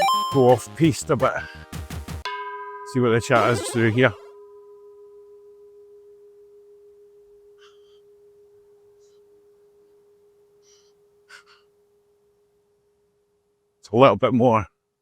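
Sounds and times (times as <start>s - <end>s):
bell-like chime tone: 0.0s - 0.6s, 2.3s - 7.5s.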